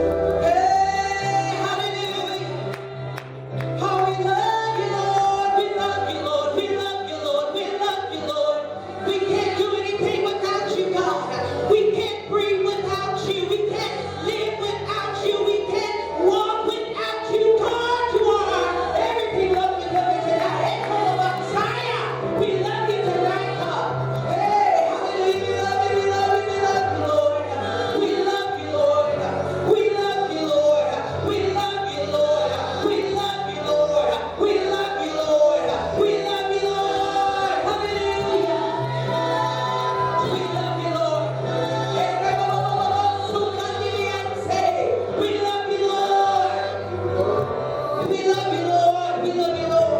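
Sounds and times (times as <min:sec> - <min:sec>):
voices singing worship song: 0:00.0 - 0:49.9.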